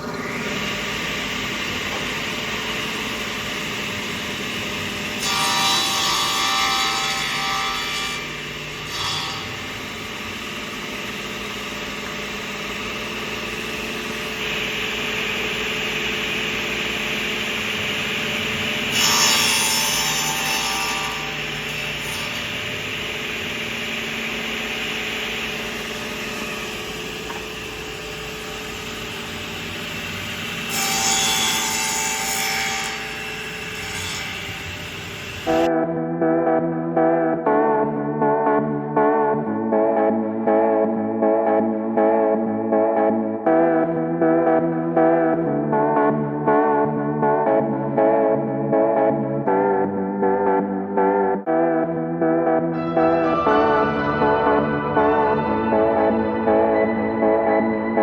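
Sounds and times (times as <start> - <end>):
table saw cutting wood: 0.0 - 35.7, 52.8 - 58.0.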